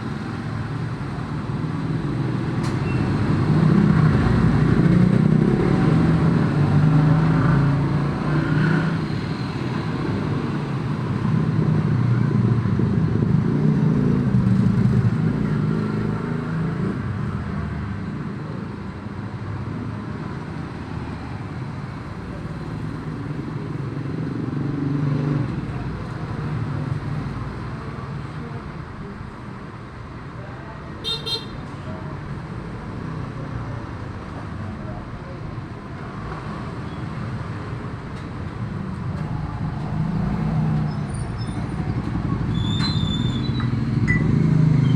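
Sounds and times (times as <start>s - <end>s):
vehicle engines running: 19.7s - 44.9s.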